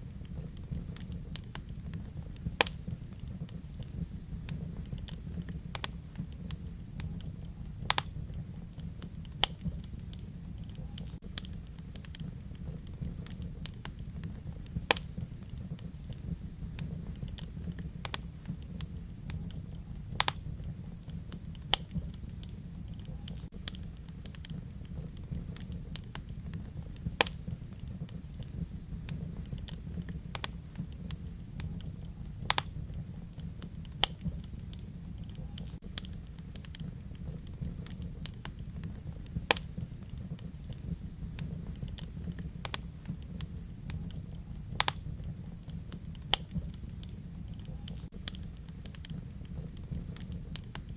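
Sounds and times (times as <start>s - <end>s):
fire crackles and pops: 0.0s - 50.9s
fire low rumble: 0.0s - 50.9s.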